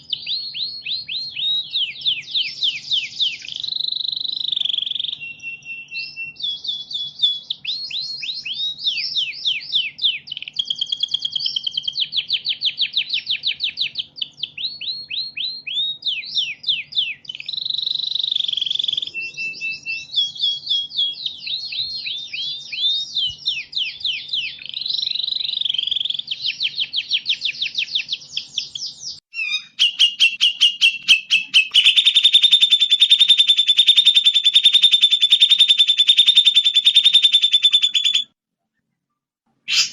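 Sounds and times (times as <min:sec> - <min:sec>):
songbird chirps and trills: 0:00.0 - 0:38.4
dense buzzing bird trill: 0:29.5 - 0:38.2.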